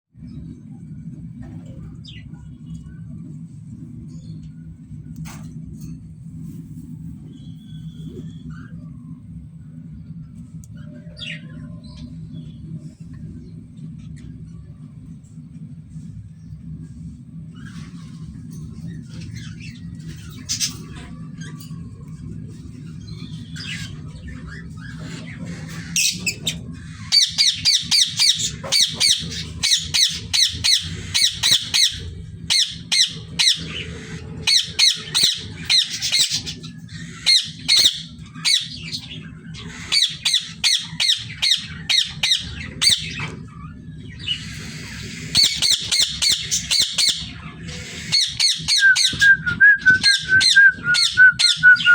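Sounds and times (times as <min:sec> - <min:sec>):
steady low hum: 0:00.1 - 0:51.9
parrots squawking: 0:23.6 - 0:43.3, 0:44.2 - 0:49.2.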